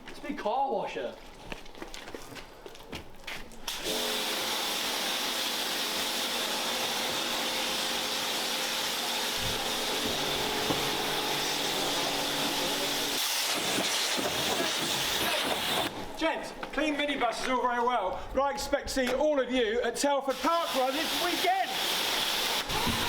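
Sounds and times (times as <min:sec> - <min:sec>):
pressure washer motor hum: 0:03.7 - 0:15.9, 0:20.3 - 0:23.0
water spray hissing: 0:09.2 - 0:15.9, 0:20.3 - 0:23.0.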